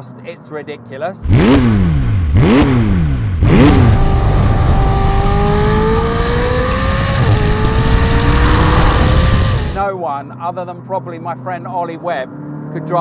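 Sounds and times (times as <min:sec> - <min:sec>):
car engine revving: 0:01.2 - 0:09.8.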